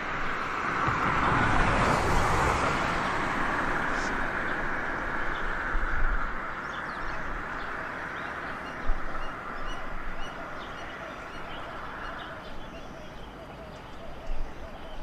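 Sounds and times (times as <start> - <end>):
birds chirping: 3.8 - 15.0.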